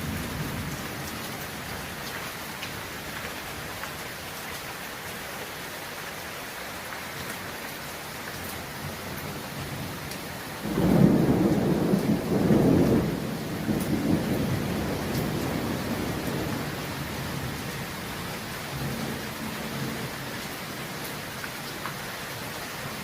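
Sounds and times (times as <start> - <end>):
steady rain: 0.0 - 23.0
thunder rumbling: 10.6 - 20.1.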